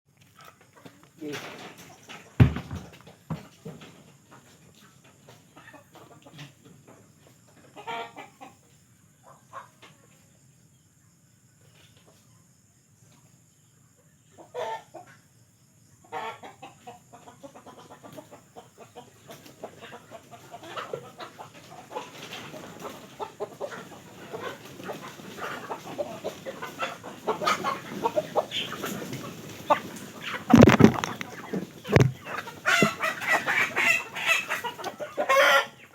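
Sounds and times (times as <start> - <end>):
chickens clucking: 0.2 - 10.5, 11.6 - 35.9
sharp thump: 30.5 - 31.3, 31.9 - 32.2.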